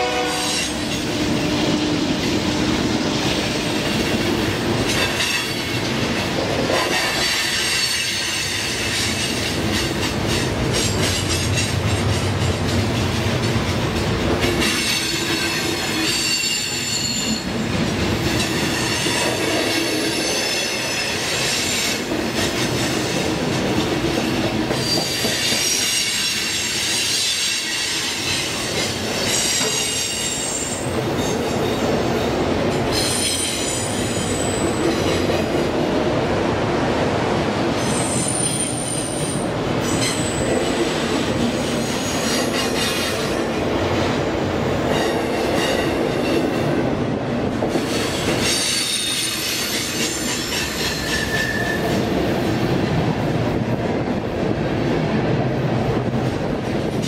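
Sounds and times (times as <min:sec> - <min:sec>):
train wheels rumbling on rails: 0:00.0 - 0:57.0
high-pitched wheel squeal: 0:48.4 - 0:51.9.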